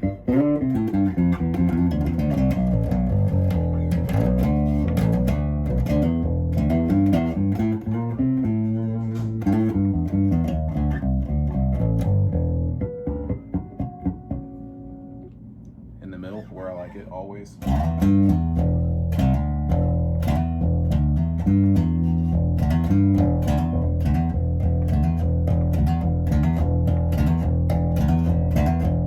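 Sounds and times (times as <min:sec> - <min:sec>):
electric bass plucked notes: 0:00.0 - 0:29.0.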